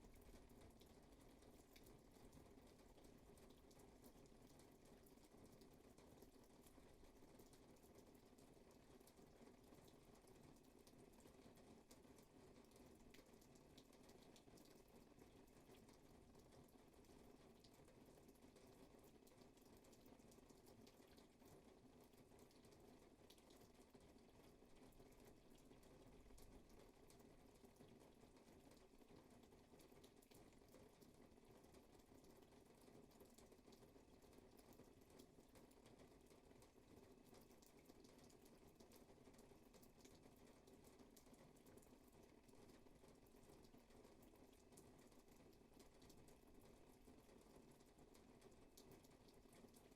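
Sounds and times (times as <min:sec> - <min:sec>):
light rain falling: 0:00.0 - 0:49.9.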